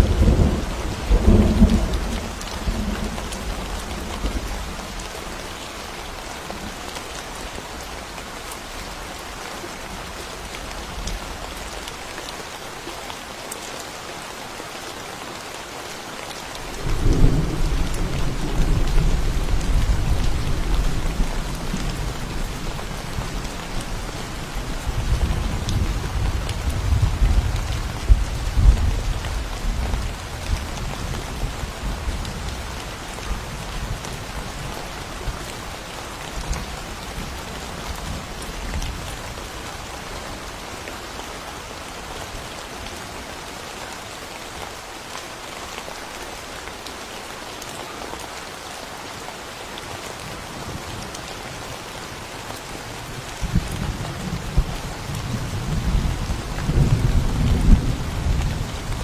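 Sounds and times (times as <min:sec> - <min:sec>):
low thunder rumble: 0:00.0 - 0:04.7, 0:16.7 - 0:31.2, 0:53.4 - 0:59.0
steady rain in forest: 0:00.0 - 0:59.0.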